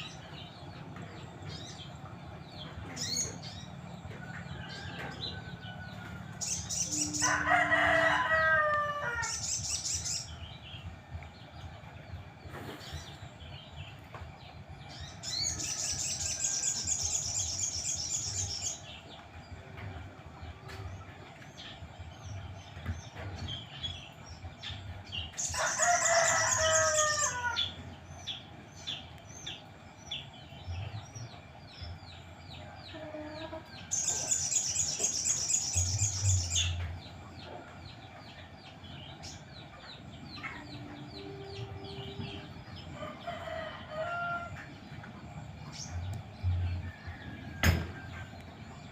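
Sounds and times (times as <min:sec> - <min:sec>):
rooster crowing: 0:04.2 - 0:09.4, 0:25.5 - 0:27.8, 0:43.0 - 0:44.7.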